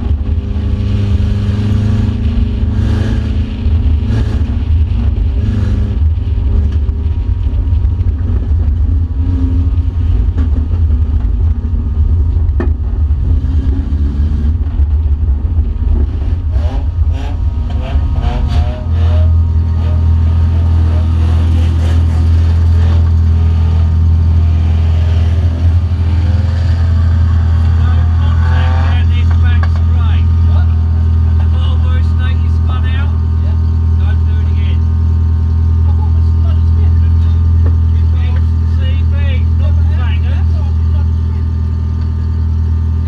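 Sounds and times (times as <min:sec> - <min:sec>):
racing car engine rumble: 0:00.0 - 0:43.0.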